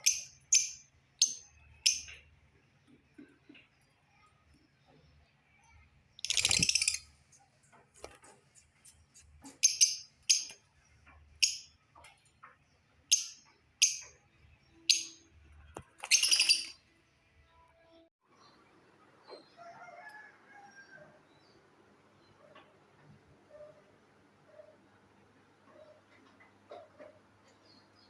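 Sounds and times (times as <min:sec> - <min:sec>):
high-pitched bird chirps: 0:06.2 - 0:07.1, 0:16.0 - 0:16.9.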